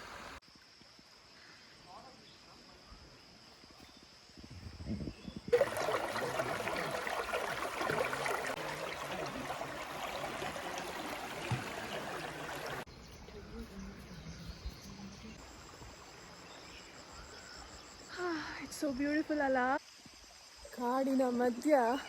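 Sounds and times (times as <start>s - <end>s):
forest stream flowing: 0.0s - 0.4s, 5.5s - 22.0s.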